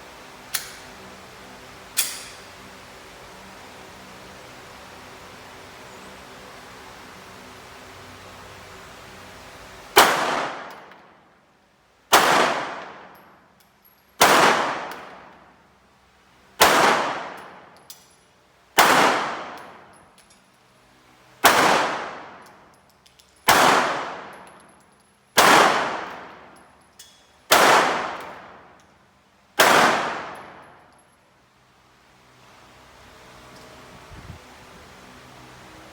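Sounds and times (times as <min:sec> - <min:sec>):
gunshots with echo: 0:29.6 - 0:30.5.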